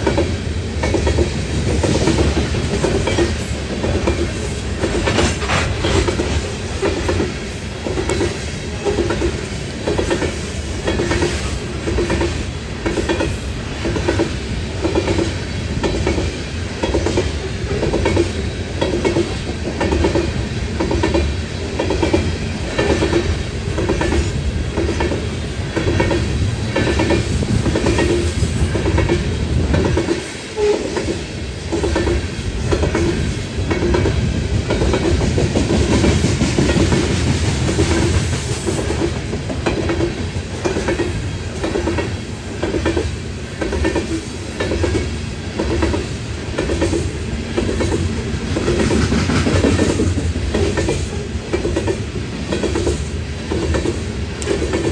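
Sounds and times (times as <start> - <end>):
train wheels clacking over rail joints: 0.0 - 54.9.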